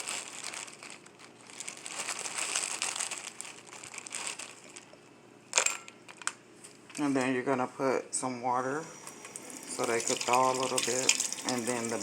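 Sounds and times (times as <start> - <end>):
plastic bag crinkling: 0.0 - 7.2, 9.7 - 12.0.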